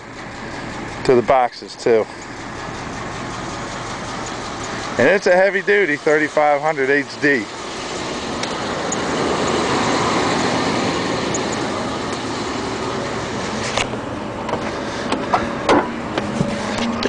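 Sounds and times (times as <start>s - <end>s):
vehicle passing by: 5.0s - 13.8s.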